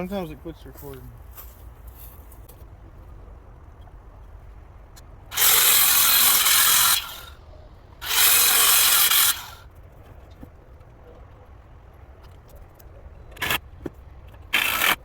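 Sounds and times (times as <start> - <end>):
power drill driving screws into wood: 5.3 - 7.3, 8.0 - 9.6, 14.5 - 15.0.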